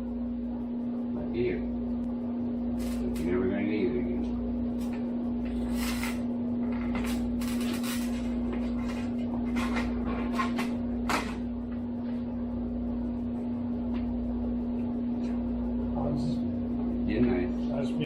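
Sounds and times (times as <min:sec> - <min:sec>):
steady hum: 0:00.0 - 0:18.0
short clatters and scrapes: 0:05.6 - 0:10.7.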